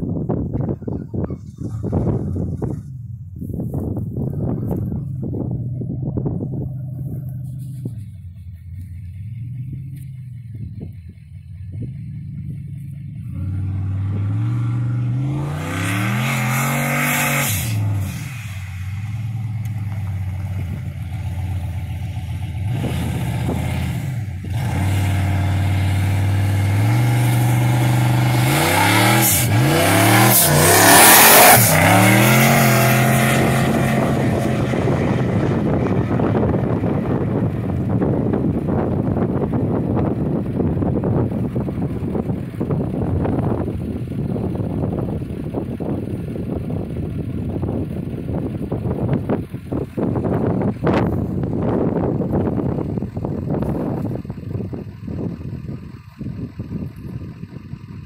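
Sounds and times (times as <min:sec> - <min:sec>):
race car engine revving: 0:11.8 - 0:43.6.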